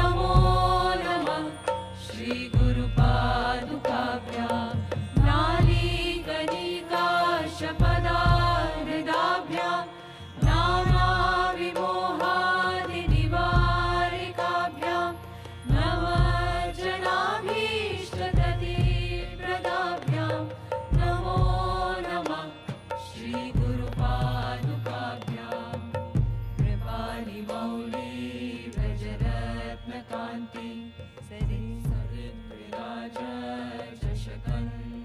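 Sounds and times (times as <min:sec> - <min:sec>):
deep drum strokes: 0:00.0 - 0:01.1, 0:05.0 - 0:06.3, 0:13.0 - 0:14.3, 0:15.6 - 0:17.0, 0:20.9 - 0:22.1
music: 0:00.0 - 0:35.0.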